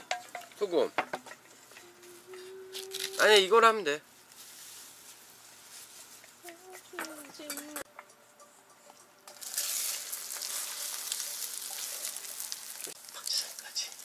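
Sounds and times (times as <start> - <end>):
bread sizzling in frying pan: 9.2 - 14.0.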